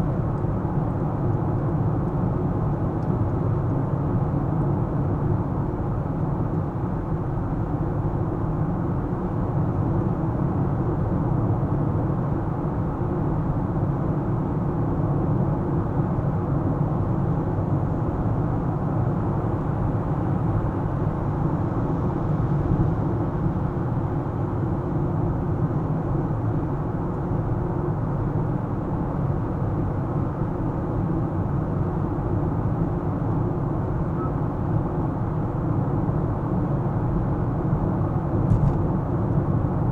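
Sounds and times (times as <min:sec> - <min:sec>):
car road and engine rumble: 0:35.6 - 0:39.9.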